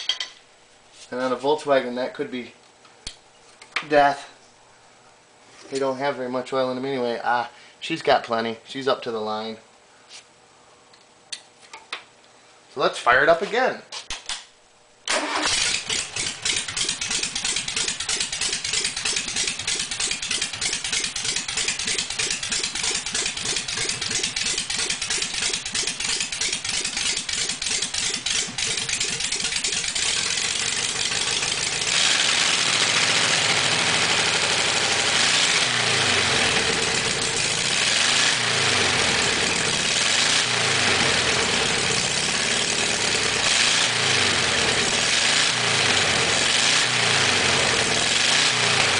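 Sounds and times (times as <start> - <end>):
engine starter cranking: 15.1 - 20.7
engine running unevenly: 15.3 - 48.9.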